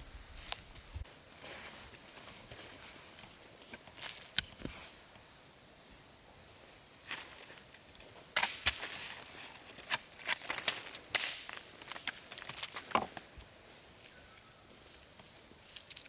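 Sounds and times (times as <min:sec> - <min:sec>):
sharp cracks and clicks: 0:09.8 - 0:12.8.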